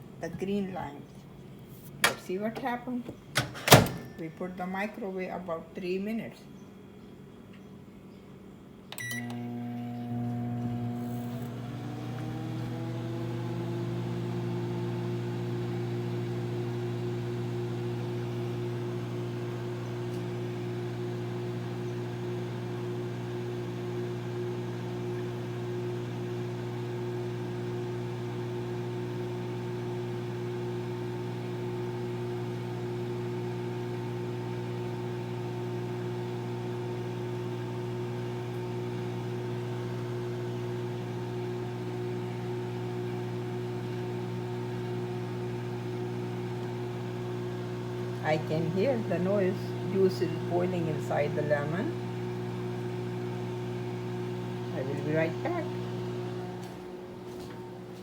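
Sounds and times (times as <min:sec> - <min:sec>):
microwave oven humming: 0:01.3 - 0:04.4, 0:08.8 - 0:58.0
microwave beep: 0:03.4 - 0:04.4, 0:09.0 - 0:13.9.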